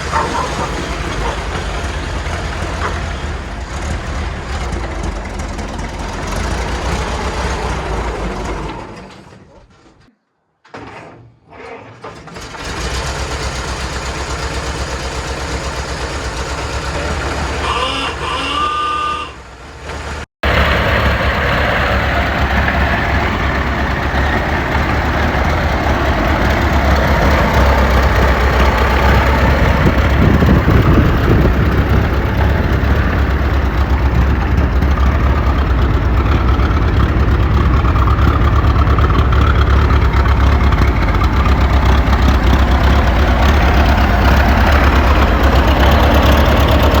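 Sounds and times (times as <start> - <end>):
car engine running: 0.0 - 8.8, 19.5 - 47.0.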